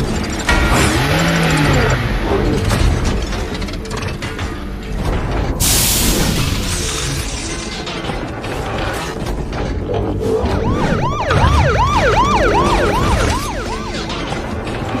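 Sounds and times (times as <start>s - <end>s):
police siren yelping: 10.2s - 15.0s.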